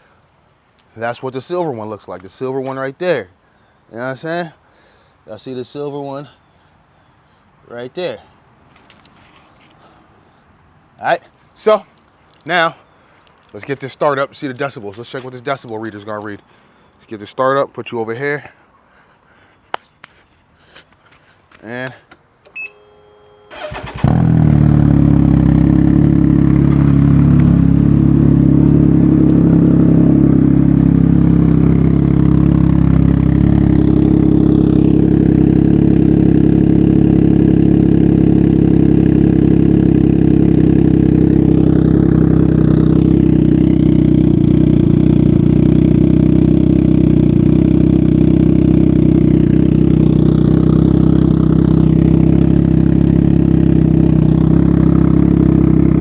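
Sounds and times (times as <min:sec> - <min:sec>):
three-cylinder engine idling loudly: 0:23.5 - 0:56.0.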